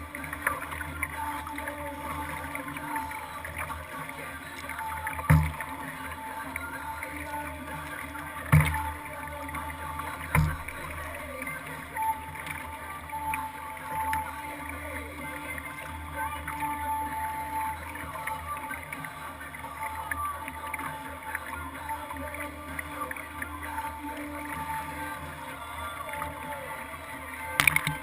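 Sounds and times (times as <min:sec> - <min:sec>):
water and hull noise: 0:00.0 - 0:28.0
loud knocks on hull: 0:05.3 - 0:05.7, 0:08.5 - 0:08.9, 0:10.4 - 0:10.8.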